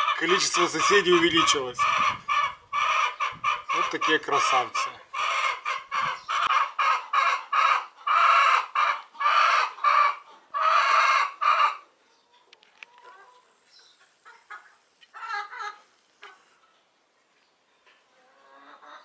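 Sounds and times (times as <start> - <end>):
faint bird chirps: 13.3 - 14.1.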